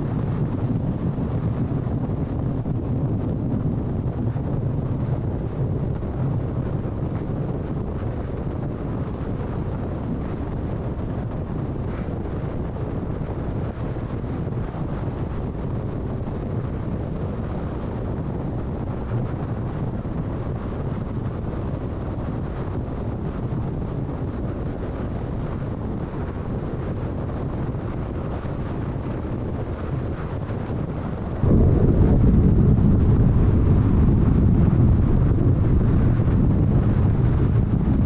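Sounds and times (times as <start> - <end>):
wind noise: 0.0 - 38.0.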